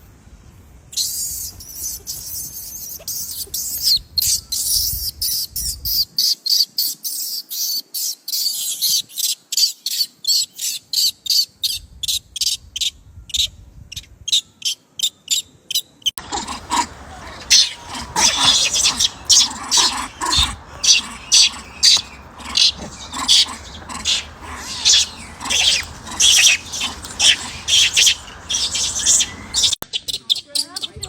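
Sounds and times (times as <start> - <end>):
high-pitched chirping: 16.7 - 29.8.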